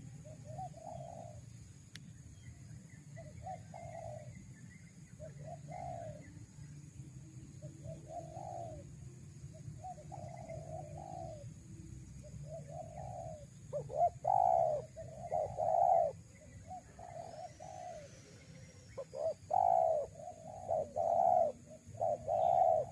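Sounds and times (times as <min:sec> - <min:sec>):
doves cooing: 0:00.0 - 0:01.4, 0:03.2 - 0:04.4, 0:05.2 - 0:06.4, 0:07.6 - 0:08.9, 0:09.8 - 0:11.5, 0:12.2 - 0:22.9.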